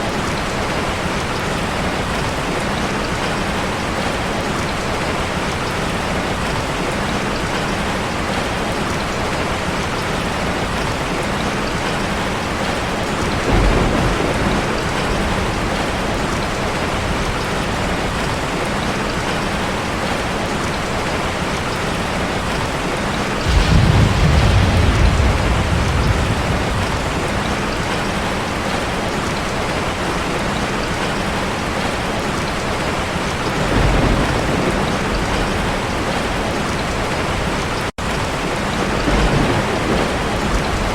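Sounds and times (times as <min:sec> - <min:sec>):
heavy rain on a car: 0:00.0 - 0:40.9
low rolls of thunder: 0:12.6 - 0:18.2, 0:23.4 - 0:28.9, 0:33.5 - 0:37.3, 0:38.1 - 0:40.9.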